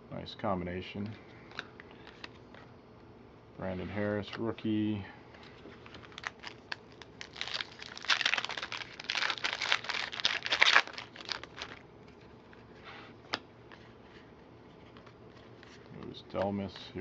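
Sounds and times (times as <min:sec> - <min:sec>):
plastic wrapper crinkling: 0:05.7 - 0:12.6.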